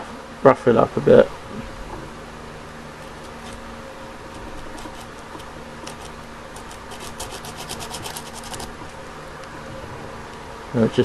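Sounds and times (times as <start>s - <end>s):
steady low hum: 0.0s - 11.0s
sandpaper rubbing on glass: 4.3s - 8.8s.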